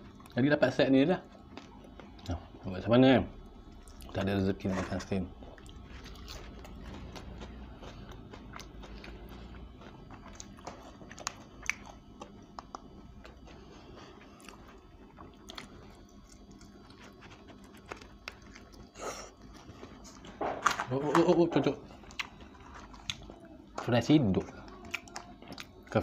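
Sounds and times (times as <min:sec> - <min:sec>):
chewing and crunching fried chicken: 0:00.0 - 0:26.0.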